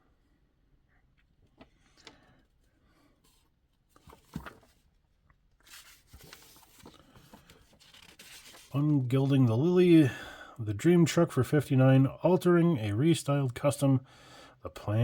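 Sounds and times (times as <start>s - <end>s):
page turning rustle: 3.2s - 4.9s, 5.6s - 9.0s.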